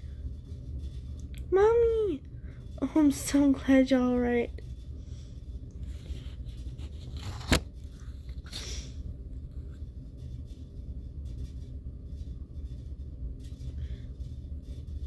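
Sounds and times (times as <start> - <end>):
low steady hum: 0.0 - 15.0
paper page turning: 5.9 - 8.0
paper rustle: 5.9 - 8.1.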